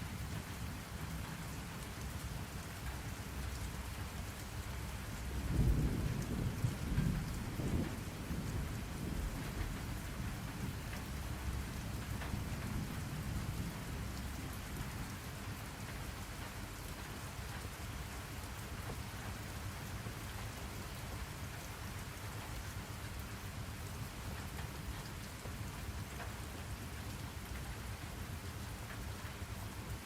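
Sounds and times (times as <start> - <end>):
rain falling: 0.0 - 30.0
rain drop ticks: 0.2 - 30.0
distant thunder rumble: 5.2 - 15.2.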